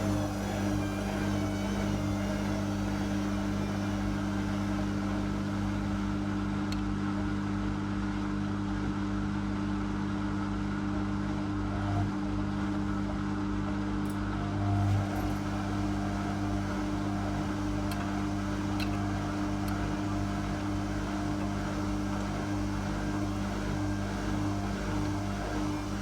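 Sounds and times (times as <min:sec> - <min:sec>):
faint high whine sliding down: 0:00.0 - 0:06.7, 0:14.2 - 0:26.0
washing machine hum: 0:00.0 - 0:26.0.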